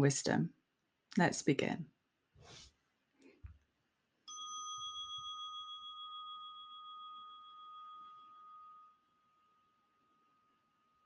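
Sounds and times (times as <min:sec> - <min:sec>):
bell ringing: 0:04.3 - 0:09.0.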